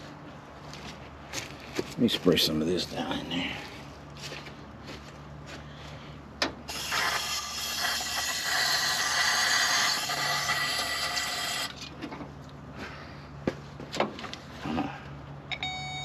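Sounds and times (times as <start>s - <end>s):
aerosol spray can hissing: 6.7s - 11.7s.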